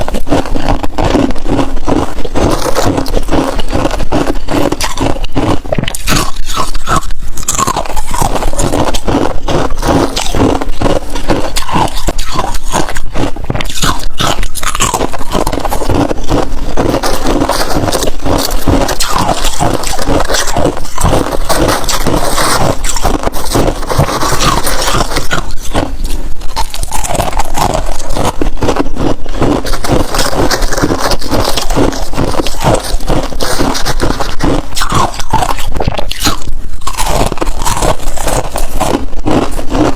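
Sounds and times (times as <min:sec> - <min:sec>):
frost being scraped and crunched: 0:00.0 - 0:39.9.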